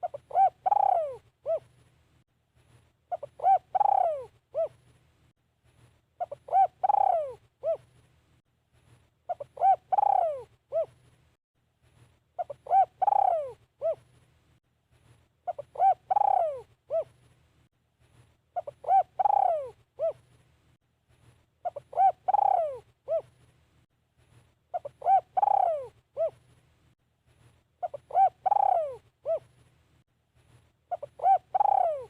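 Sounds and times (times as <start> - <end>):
dove cooing: 0.0 - 1.7, 3.1 - 4.8, 6.2 - 7.9, 9.3 - 11.0, 12.4 - 14.1, 15.5 - 17.2, 18.6 - 20.2, 21.6 - 23.4, 24.7 - 26.4, 27.8 - 29.5, 30.9 - 32.0.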